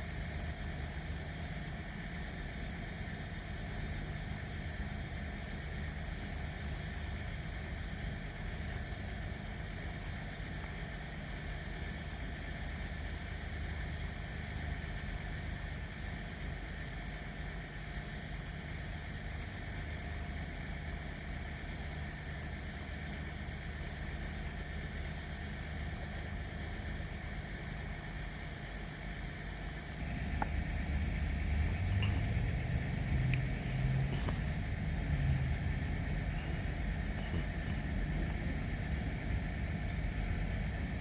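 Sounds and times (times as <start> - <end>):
diesel locomotive engine revving: 30.0 - 40.8.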